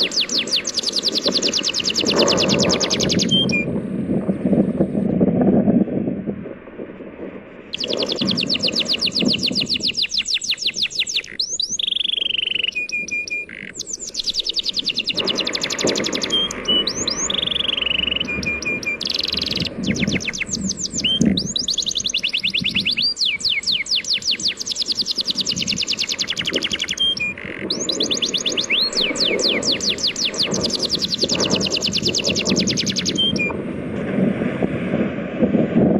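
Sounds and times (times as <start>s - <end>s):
birds trilling: 0.0s - 3.7s, 7.7s - 33.6s
sea waves: 13.6s - 31.8s.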